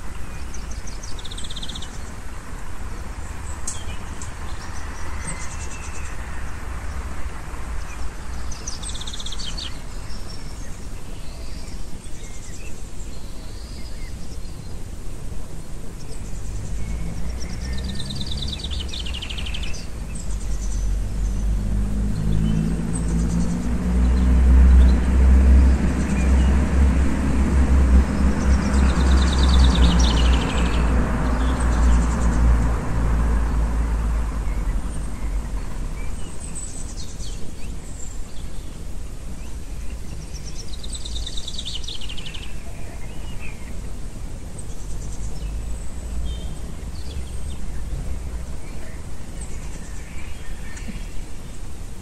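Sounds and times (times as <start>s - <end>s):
small birds trilling: 0.0s - 52.0s.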